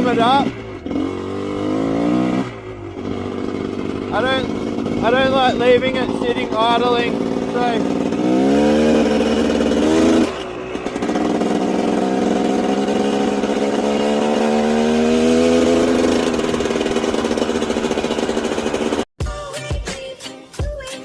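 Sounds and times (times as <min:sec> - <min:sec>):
dirt bike engine revving: 0:00.0 - 0:19.1.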